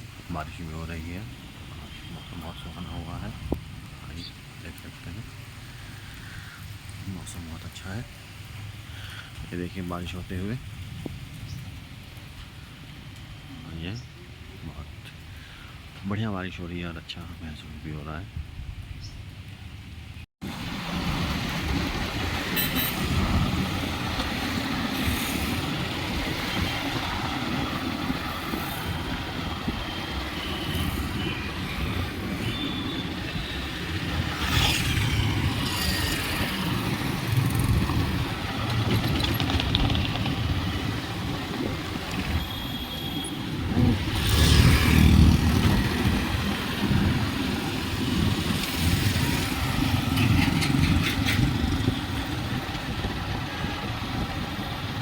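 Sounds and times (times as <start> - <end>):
rain rumble: 0.0 - 55.0
road vehicles passing: 20.4 - 55.0.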